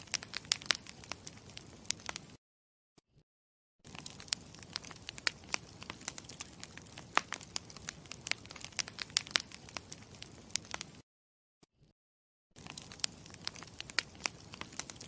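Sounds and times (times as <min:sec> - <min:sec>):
campfire crackling and popping: 0:00.0 - 0:02.4, 0:03.9 - 0:11.0, 0:12.6 - 0:15.0.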